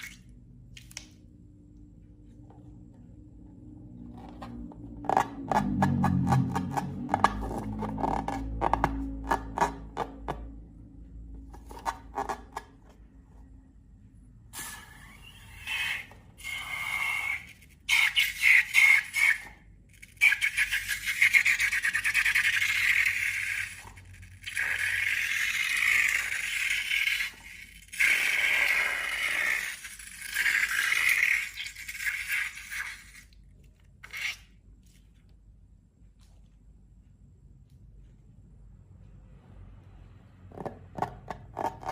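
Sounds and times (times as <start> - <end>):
crackly scraping of slime: 4.1 - 10.3, 11.4 - 13.0, 40.5 - 41.9.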